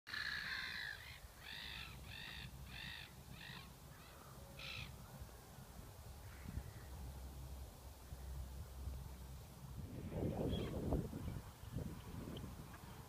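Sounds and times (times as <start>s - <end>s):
bird harsh croaking calls: 0.1s - 5.0s.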